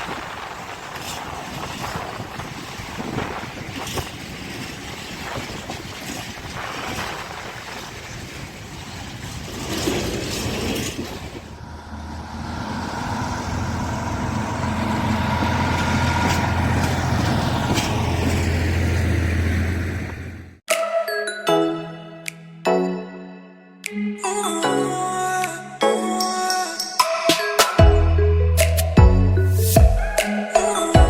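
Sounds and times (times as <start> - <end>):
train wheels clattering on rails: 0.0 - 20.4
locomotive low drone: 6.5 - 20.6.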